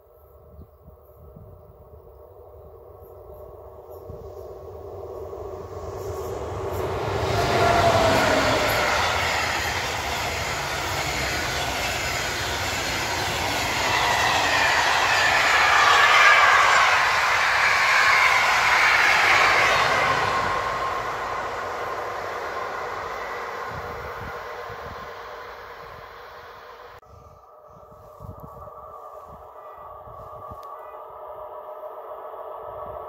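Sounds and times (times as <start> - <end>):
train rushing past on track: 2.7 - 27.0.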